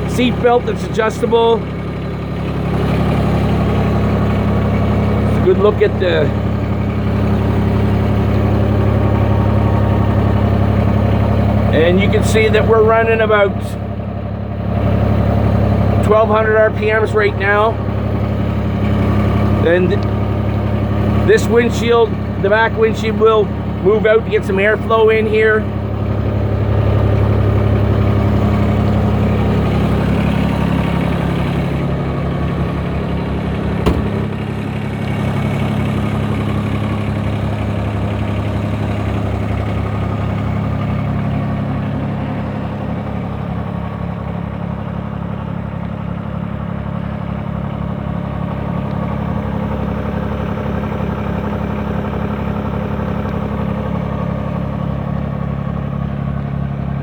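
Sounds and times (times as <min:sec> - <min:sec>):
tractor diesel engine running: 0:00.0 - 0:57.0
sharp click: 0:33.8 - 0:34.4.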